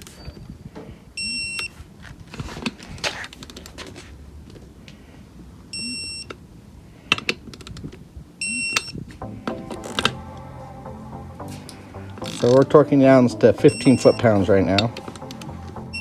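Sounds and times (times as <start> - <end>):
torque wrench beeping: 8.4 - 9.0, 11.9 - 12.8, 13.6 - 16.0.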